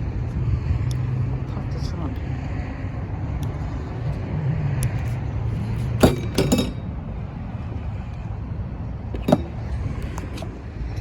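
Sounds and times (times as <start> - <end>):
liftgate latch clunk: 6.0 - 6.8.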